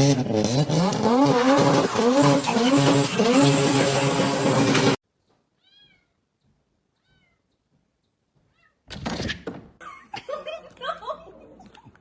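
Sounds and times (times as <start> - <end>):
cat meowing: 5.6 - 6.2, 7.0 - 7.5.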